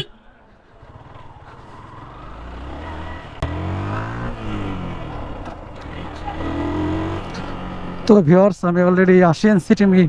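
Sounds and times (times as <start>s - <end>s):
motorcycle engine running: 0.6s - 8.1s.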